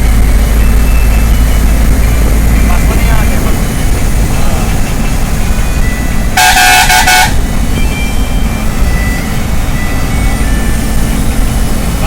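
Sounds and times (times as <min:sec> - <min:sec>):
bus engine rumbling: 0:00.0 - 0:12.0
vehicle horn short toots: 0:06.4 - 0:07.4.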